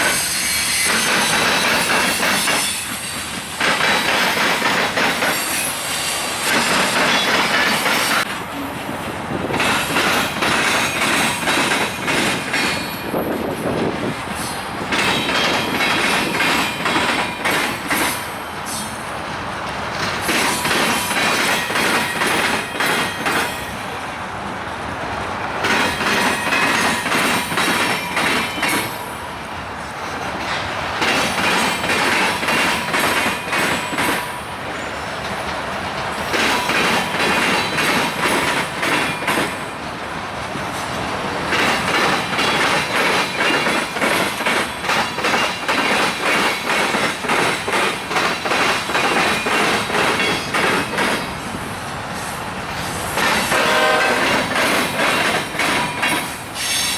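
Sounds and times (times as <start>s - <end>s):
faint wheel squeal: 0.0s - 1.5s
train wheels clattering over rail joints: 0.0s - 23.8s, 25.6s - 29.2s, 30.0s - 56.9s.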